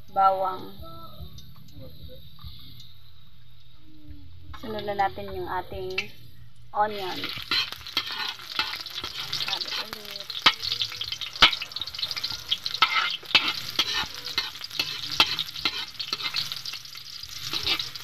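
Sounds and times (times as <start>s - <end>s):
onion and garlic sizzling in oil: 4.6s - 18.0s
metal spoon scraping a wok: 6.9s - 18.0s.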